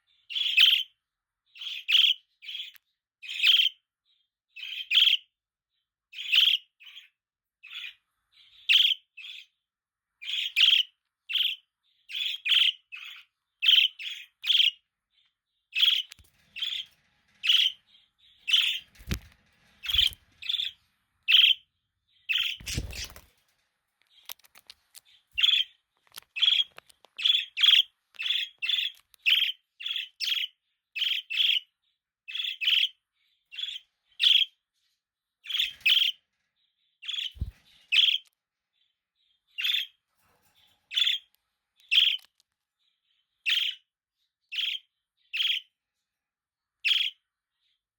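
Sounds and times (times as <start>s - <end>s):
budgerigar chirping: 0.3s - 0.9s, 6.2s - 7.1s, 8.7s - 9.5s, 10.2s - 14.8s, 26.3s - 31.7s, 41.9s - 42.3s, 43.5s - 43.8s, 44.5s - 45.7s.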